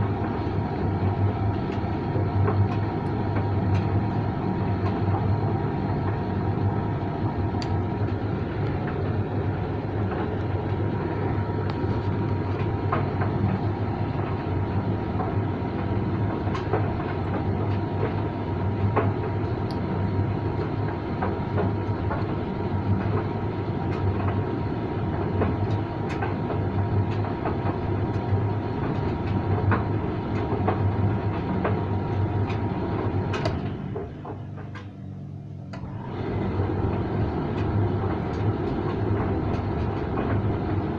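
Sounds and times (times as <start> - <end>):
tumble dryer rumbling hum: 0.0 - 40.9
clicks and knocks in dryer: 16.1 - 19.6, 25.1 - 35.0.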